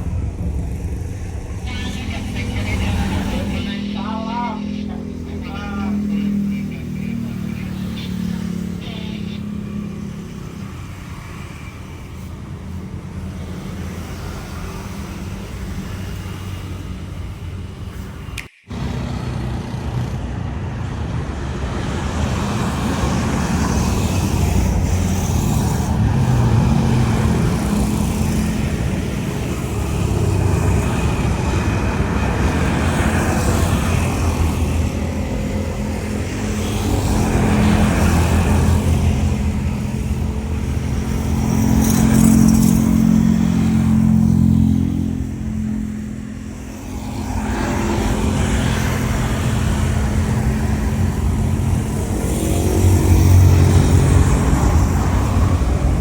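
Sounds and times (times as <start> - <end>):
jet engines at takeoff: 0.0 - 56.0
low engine rumble: 0.0 - 56.0.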